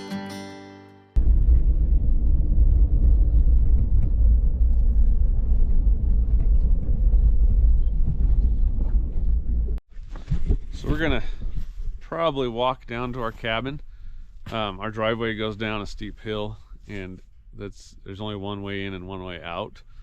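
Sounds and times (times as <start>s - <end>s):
vehicle driving rumble: 1.2s - 9.8s.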